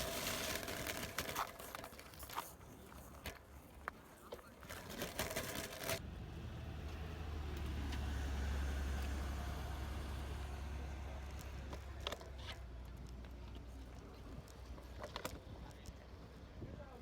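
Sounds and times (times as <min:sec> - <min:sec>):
burst of clatter: 0:00.0 - 0:02.5
motor vehicle passing: 0:06.0 - 0:12.1.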